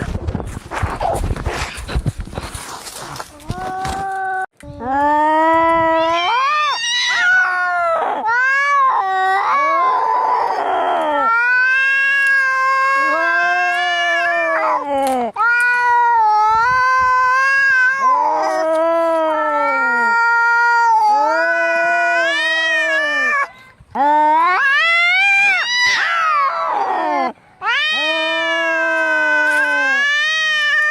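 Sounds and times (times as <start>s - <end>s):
cats yowling: 5.8s - 23.5s, 24.1s - 30.9s.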